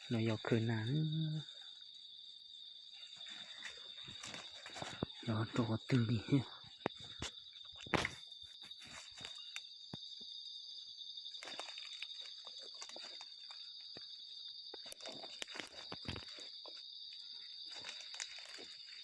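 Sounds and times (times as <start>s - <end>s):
movement through dry undergrowth: 0.0s - 9.6s, 11.3s - 19.0s
high-pitched insect drone: 0.0s - 10.5s.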